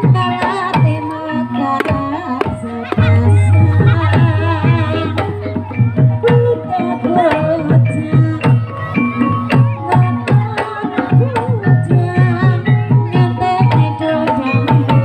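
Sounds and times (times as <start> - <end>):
held metallophone tones: 1.6 - 10.4
hand drum strokes: 2.8 - 7.9
wavering melody: 2.8 - 8.6.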